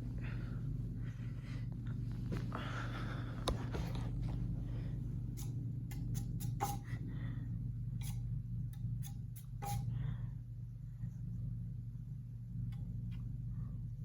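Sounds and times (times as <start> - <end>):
ceiling fan humming: 0.0 - 14.0.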